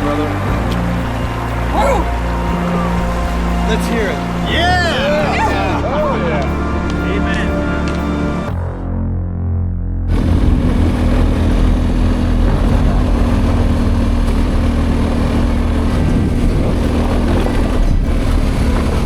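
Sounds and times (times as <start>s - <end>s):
steady rushing noise: 0.0s - 8.6s, 10.1s - 19.0s
motorcycle engine running: 10.1s - 19.0s.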